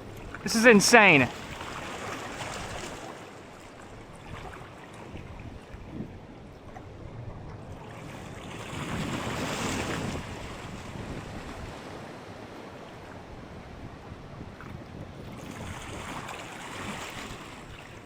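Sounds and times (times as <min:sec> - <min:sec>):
water washing on shallows: 0:00.0 - 0:18.0
wind buffeting microphone: 0:04.2 - 0:12.2, 0:13.1 - 0:16.9.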